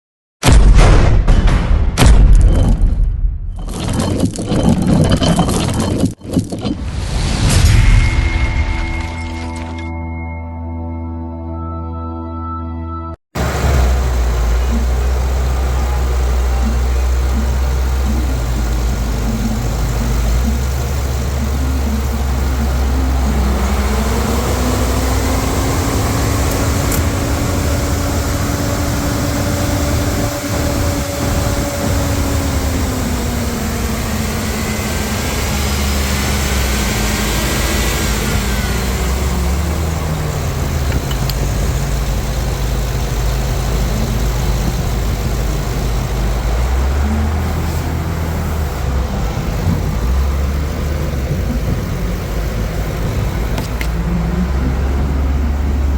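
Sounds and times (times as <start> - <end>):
engine revving and idling: 13.4 - 55.9.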